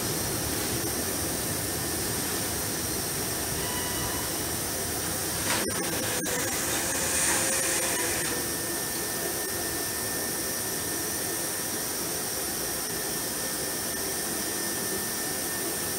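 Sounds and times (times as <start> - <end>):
freight train wheel and rail noise: 0.0 - 15.9
thin high tone: 3.6 - 4.5.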